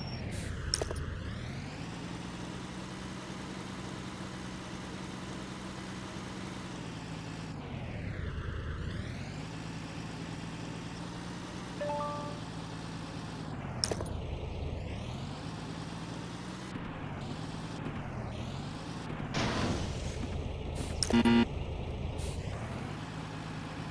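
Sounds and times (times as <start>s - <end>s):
vehicle engine drone: 0.0s - 23.9s
short beep: 11.8s - 12.5s, 21.0s - 21.5s.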